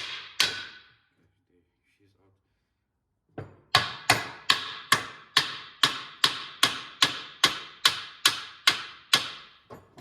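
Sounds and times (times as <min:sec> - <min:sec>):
hammer striking metal: 0:00.0 - 0:00.9, 0:03.7 - 0:09.5.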